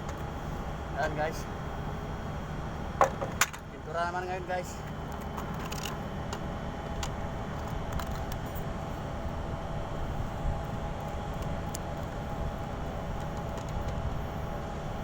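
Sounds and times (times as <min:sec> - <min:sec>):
faint steady hum: 0:00.0 - 0:15.0
ship machinery rumble: 0:00.0 - 0:15.0.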